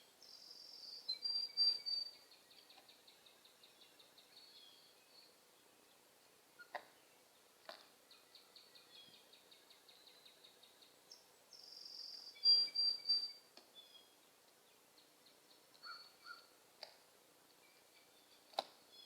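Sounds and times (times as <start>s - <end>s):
faint high bird ticks: 2.5s - 4.3s
high-pitched bird calls: 15.8s - 16.5s.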